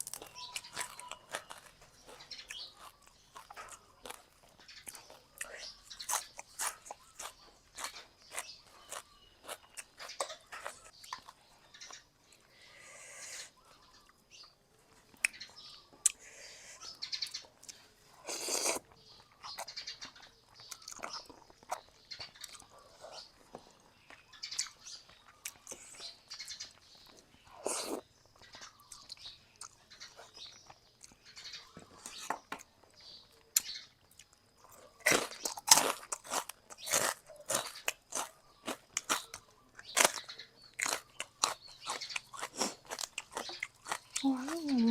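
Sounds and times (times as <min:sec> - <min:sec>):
wet chewing and lip smacks: 0:17.2 - 0:31.3, 0:33.4 - 0:44.9.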